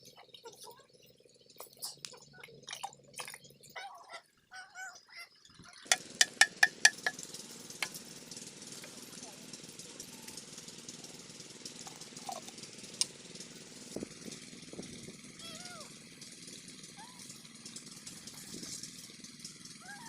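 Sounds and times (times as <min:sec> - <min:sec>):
diesel engine starting and running: 0:05.4 - 0:20.0
metal clinks and knocks: 0:05.9 - 0:08.0.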